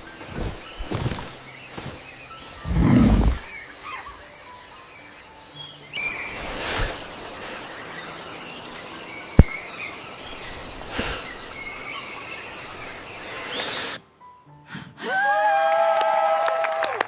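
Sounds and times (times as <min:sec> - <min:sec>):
steady hiss: 0:00.0 - 0:14.3
faint bird chirps: 0:00.0 - 0:14.4
soft thumps: 0:09.4 - 0:09.6.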